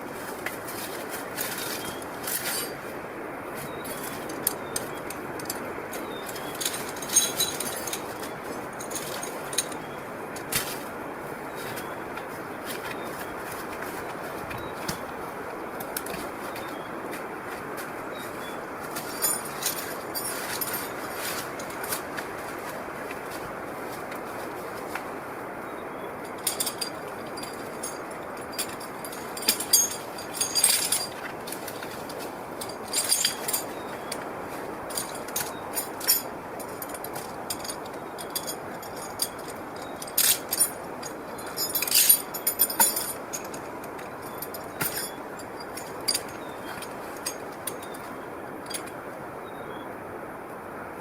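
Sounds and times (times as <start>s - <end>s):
steady background noise: 0.0s - 51.0s
metal clinks and jangles: 0.6s - 2.8s, 3.7s - 10.8s, 18.1s - 22.2s, 26.2s - 49.0s.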